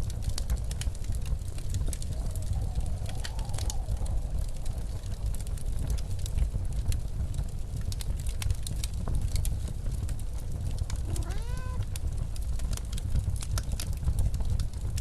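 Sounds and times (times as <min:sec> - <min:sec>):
blizzard wind rumble: 0:00.0 - 0:15.0
wood fire crackling and popping: 0:00.0 - 0:15.0
cat meowing: 0:11.0 - 0:11.9.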